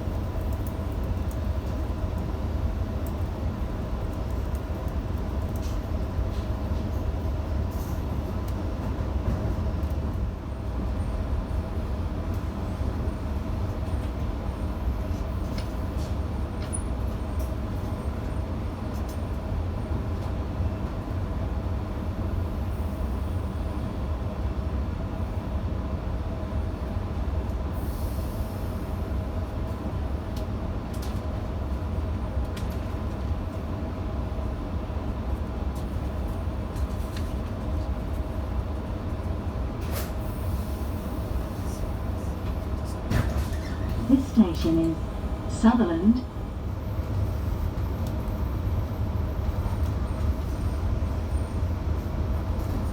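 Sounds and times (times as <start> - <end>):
train low rumble and hum: 0.0 - 52.9
clicks from train wheels: 4.1 - 7.0.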